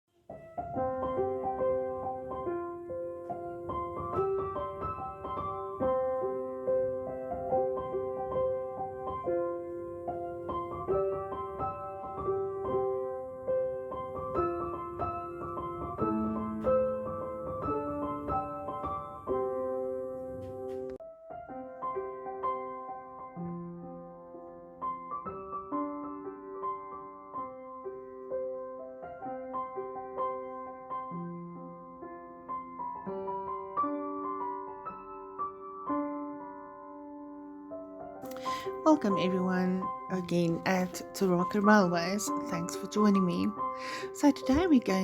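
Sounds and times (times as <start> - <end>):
gentle piano music: 0.1 - 45.0.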